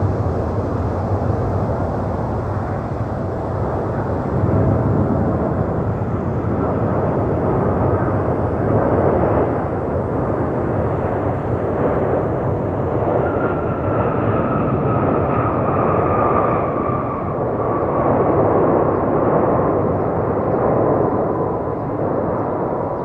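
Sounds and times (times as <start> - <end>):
airliner jet engine landing: 0.0 - 23.0.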